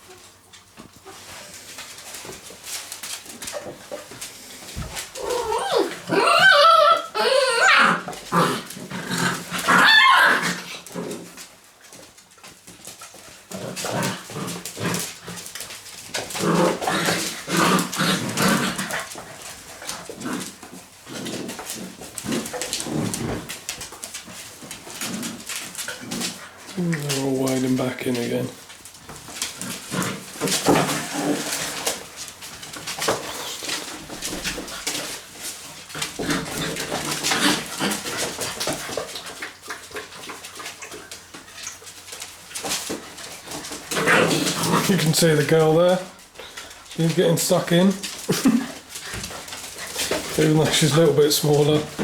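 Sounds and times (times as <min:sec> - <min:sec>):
puppies growling: 0:01.0 - 0:52.0
puppies yapping: 0:04.9 - 0:08.7, 0:09.3 - 0:11.0
puppies whimpering: 0:05.1 - 0:08.1.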